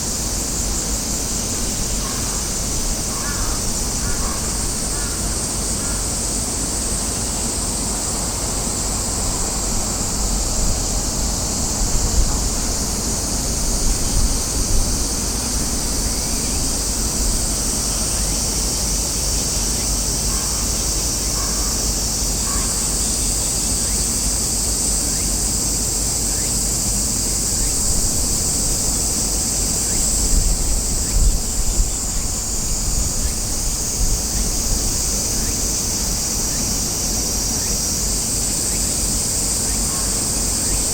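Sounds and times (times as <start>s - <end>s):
cicadas chorus: 0.0s - 40.9s
wind buffeting microphone: 9.1s - 17.7s, 29.9s - 36.2s.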